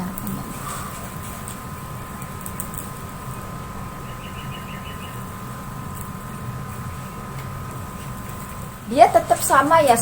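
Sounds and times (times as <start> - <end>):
faint two-tone hum: 0.0 - 10.0.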